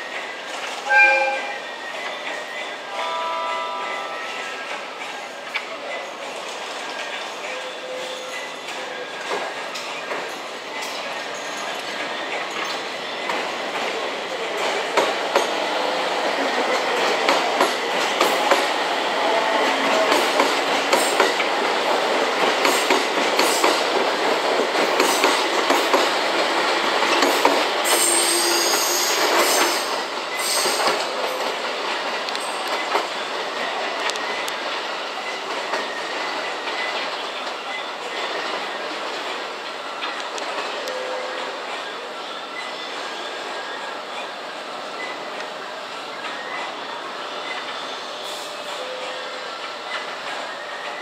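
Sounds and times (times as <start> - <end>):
high wheel squeal: 0.8 - 4.6, 27.9 - 31.2
train wheels clattering over joints: 19.6 - 34.1.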